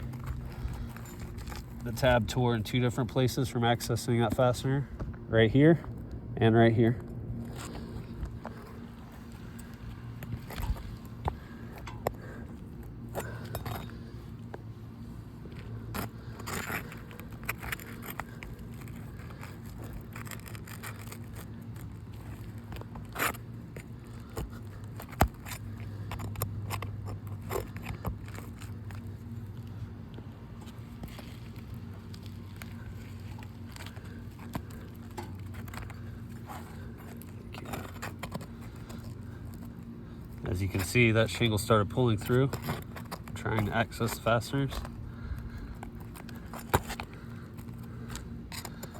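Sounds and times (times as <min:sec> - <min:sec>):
prying tool scraping shingles: 0:00.0 - 0:02.4, 0:15.6 - 0:29.4, 0:30.6 - 0:48.9
shingle tearing: 0:00.0 - 0:02.4, 0:07.4 - 0:14.5, 0:15.5 - 0:29.8, 0:30.6 - 0:48.9
steady low hum: 0:00.0 - 0:48.9.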